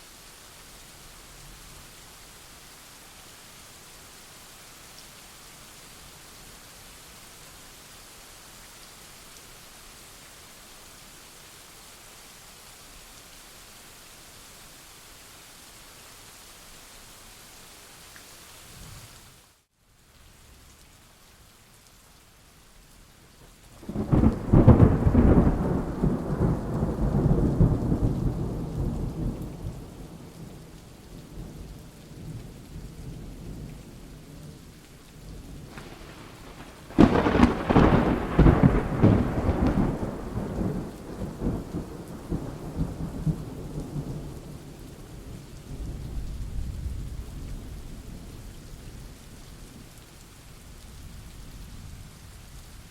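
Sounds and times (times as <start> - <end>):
steady rain: 0.0 - 52.9
thunder rolling: 35.7 - 43.4.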